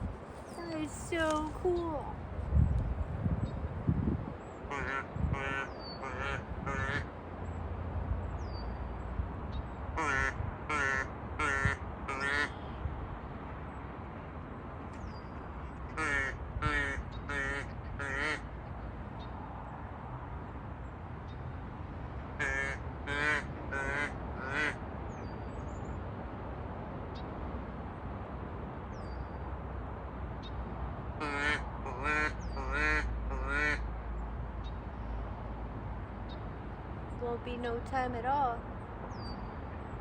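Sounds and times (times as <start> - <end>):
duck call quacks: 4.7 - 7.1, 10.0 - 12.5, 16.0 - 18.4, 22.4 - 24.8, 31.2 - 33.8.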